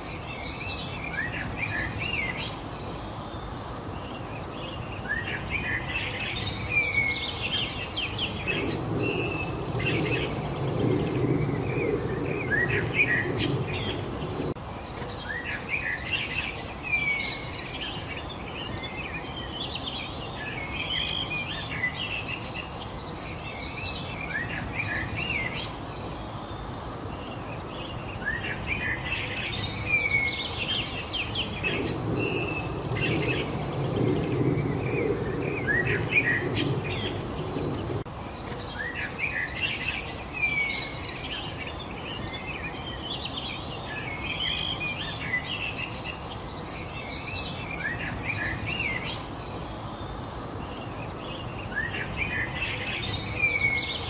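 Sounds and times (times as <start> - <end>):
background hiss: 0.0 - 54.0
songbirds chirping and singing: 0.0 - 54.0
low rumble: 8.3 - 14.6, 31.4 - 38.1.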